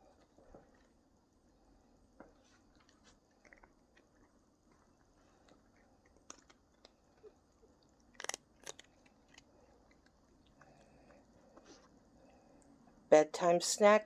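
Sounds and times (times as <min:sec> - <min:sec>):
cats crunching treats: 0:02.7 - 0:12.0.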